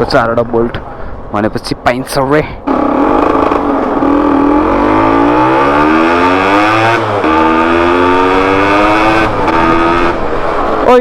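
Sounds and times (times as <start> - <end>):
motorcycle engine accelerating: 2.6 - 11.0.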